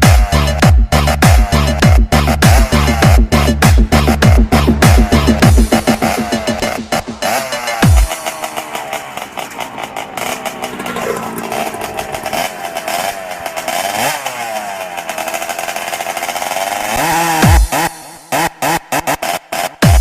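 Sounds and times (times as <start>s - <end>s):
electronic music: 0.0s - 13.2s
motorcycle engine revving: 0.0s - 20.0s.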